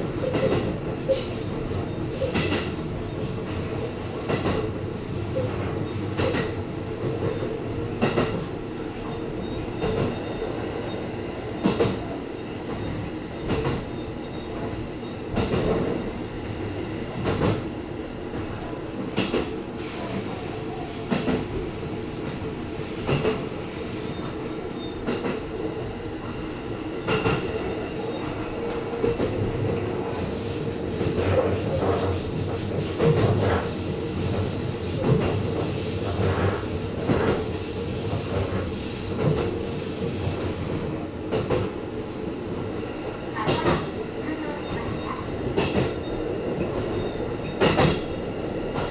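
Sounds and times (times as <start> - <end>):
train running hum: 0.0 - 48.9
train wheels clacking over rail joints: 46.6 - 48.1.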